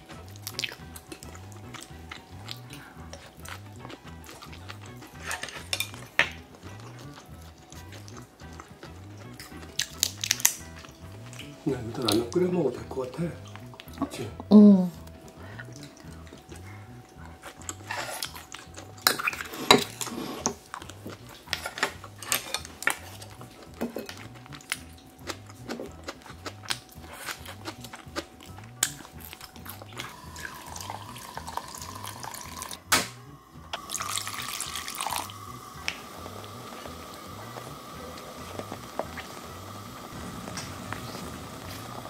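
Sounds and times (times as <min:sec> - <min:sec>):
cookware and utensils clinking: 0:04.5 - 0:06.8, 0:17.5 - 0:24.9
water running: 0:29.4 - 0:32.9, 0:33.6 - 0:42.0.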